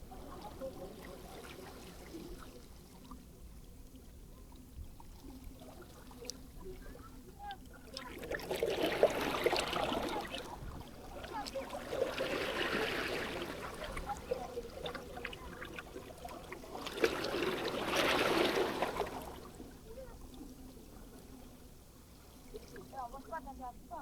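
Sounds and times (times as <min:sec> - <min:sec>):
small waves washing up shore: 0:07.9 - 0:23.9.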